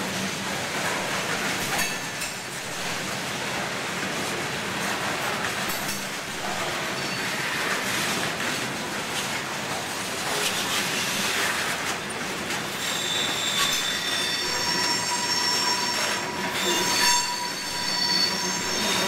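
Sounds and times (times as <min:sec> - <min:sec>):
railroad cars rumbling past: 0:00.0 - 0:19.0
train wheels squealing: 0:01.6 - 0:03.1, 0:05.7 - 0:07.6, 0:12.6 - 0:19.0.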